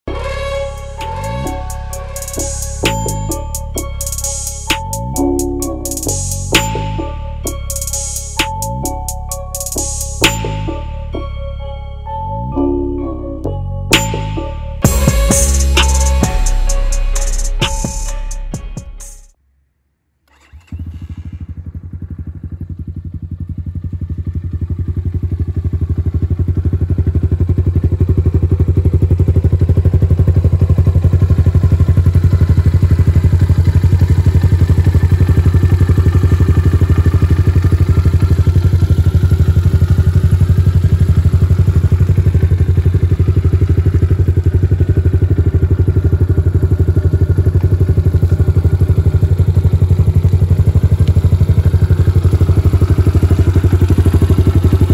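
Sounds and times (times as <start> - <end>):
motorbike engine running: 0.1 - 10.9, 14.0 - 18.9, 20.3 - 54.9.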